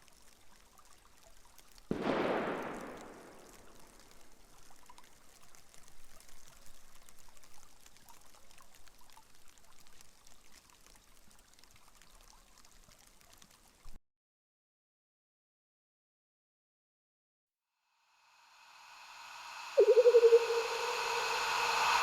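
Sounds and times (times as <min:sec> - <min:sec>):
rain pattering on window glass: 0:03.0 - 0:14.0.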